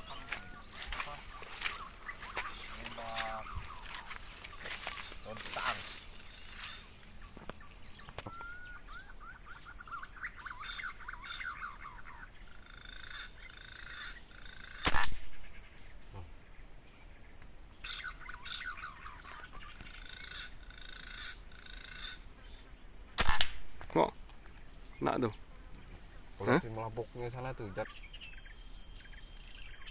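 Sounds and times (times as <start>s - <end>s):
rapid chirping calls: 0.0s - 16.6s, 17.8s - 24.1s, 24.7s - 29.9s
high insect drone: 0.0s - 29.9s
rifle shot: 14.8s - 15.5s, 23.2s - 23.8s.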